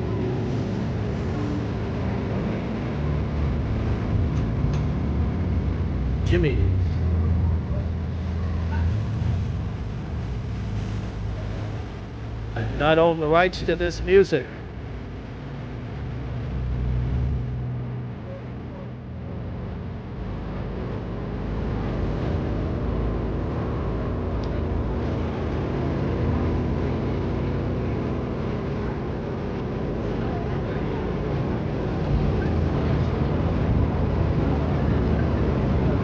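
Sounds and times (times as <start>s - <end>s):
low engine-like rumble: 0.0s - 36.0s.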